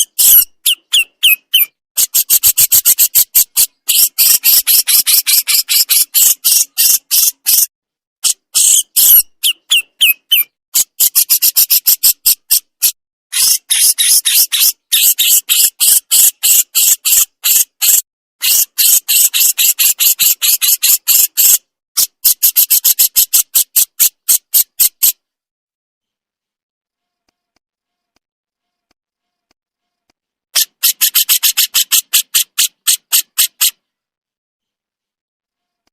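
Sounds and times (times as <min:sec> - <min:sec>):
bulbul rattling calls: 0:00.0 - 0:07.7, 0:13.4 - 0:21.6, 0:30.6 - 0:33.8.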